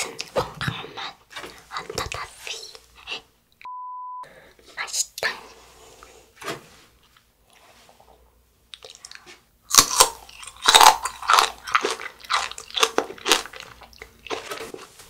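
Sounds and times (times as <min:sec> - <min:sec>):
crunchy chewing of candy: 0:08.8 - 0:15.0.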